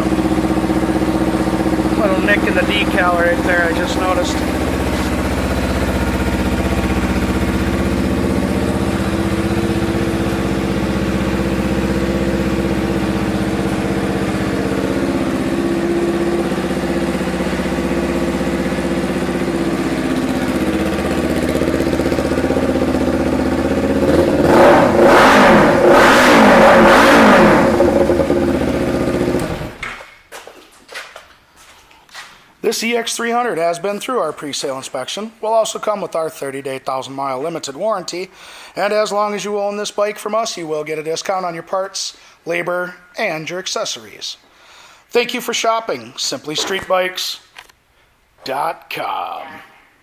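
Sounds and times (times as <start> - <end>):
motorcycle engine idling and revving: 0.0 - 29.9.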